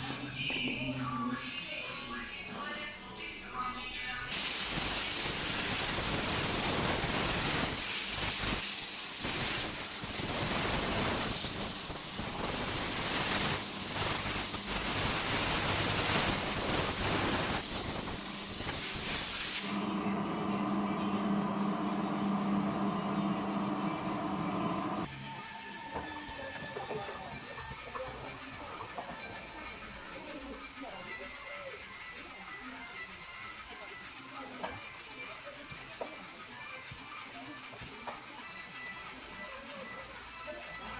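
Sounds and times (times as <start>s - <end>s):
air jet hissing: 4.3s - 19.8s
machine humming: 19.6s - 25.1s.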